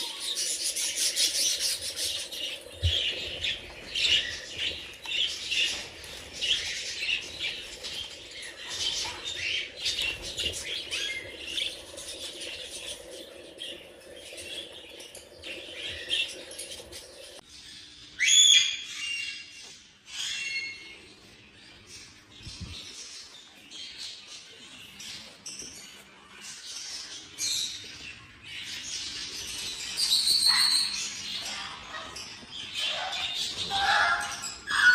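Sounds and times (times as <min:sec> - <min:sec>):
budgerigars chattering and chirping: 0:28.7 - 0:34.9.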